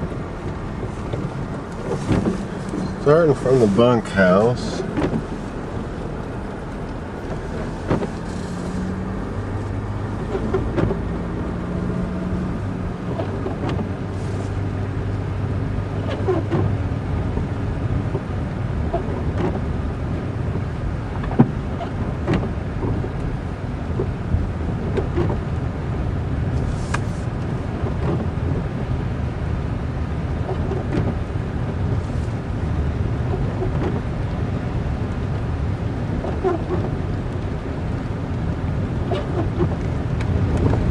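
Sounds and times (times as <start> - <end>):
vehicle engine and road noise: 0.0 - 40.9
short knocks and clicks: 0.5 - 3.0, 10.2 - 11.1.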